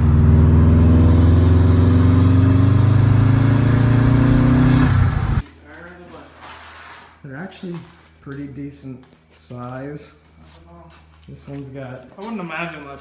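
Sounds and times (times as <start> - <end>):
vehicle engine accelerating: 0.0 - 5.4.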